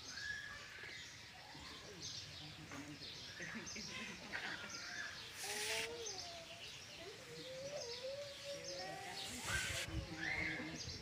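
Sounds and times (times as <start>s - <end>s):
small birds chirping: 0.0s - 11.0s
brief scuffing hisses: 5.4s - 6.0s.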